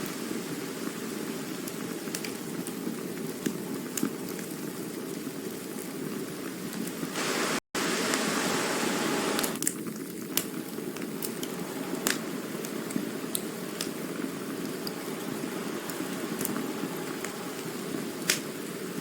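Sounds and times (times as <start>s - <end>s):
campfire flames crackling and popping: 0.0s - 7.6s, 9.4s - 19.0s
bright hiss: 7.0s - 9.7s, 10.6s - 19.0s.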